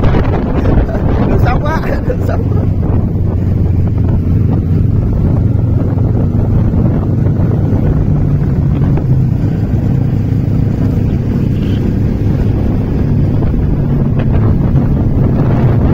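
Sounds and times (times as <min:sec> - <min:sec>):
motorcycle engine running: 0:00.0 - 0:15.9
wind buffeting microphone: 0:00.0 - 0:15.9.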